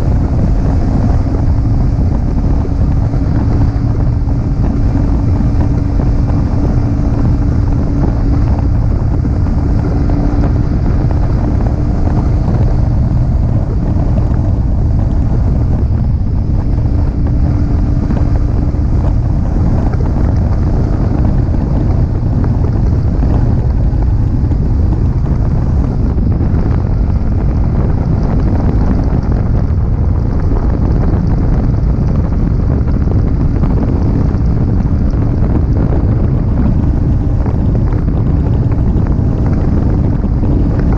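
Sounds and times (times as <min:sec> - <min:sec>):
motorcycle engine running: 0:00.0 - 0:40.9
wind buffeting on microphone: 0:00.0 - 0:40.9.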